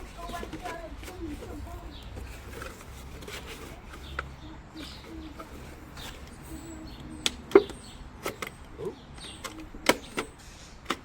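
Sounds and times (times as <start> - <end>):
birds calling: 0.0 - 11.0
low bird coos: 3.6 - 8.0.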